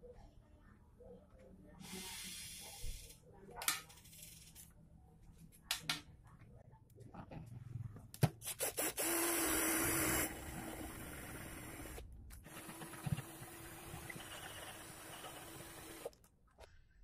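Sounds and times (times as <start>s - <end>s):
electric motor humming: 9.0s - 16.1s.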